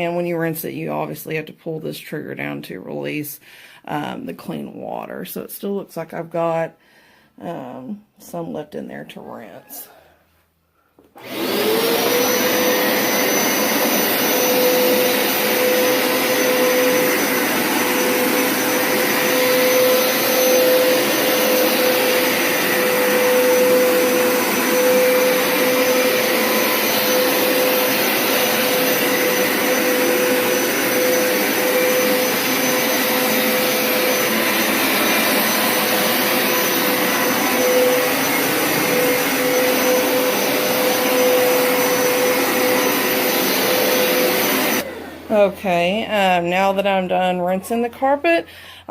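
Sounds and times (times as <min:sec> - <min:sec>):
rushing suction noise: 0:11.2 - 0:45.2
carpet washer motor whining: 0:11.2 - 0:46.0.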